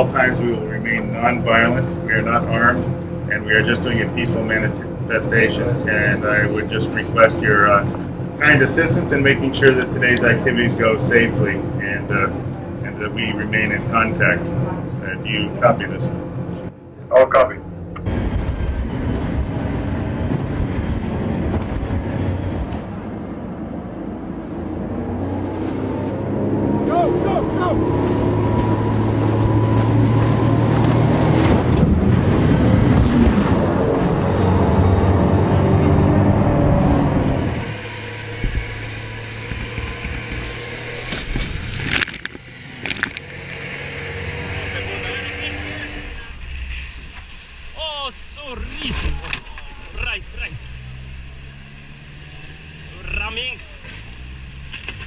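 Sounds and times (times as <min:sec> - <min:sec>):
motorboat engine running: 0:00.0 - 0:55.0
wind: 0:00.0 - 0:55.0
wind on microphone: 0:18.1 - 0:43.0
rushing water: 0:18.1 - 0:55.0.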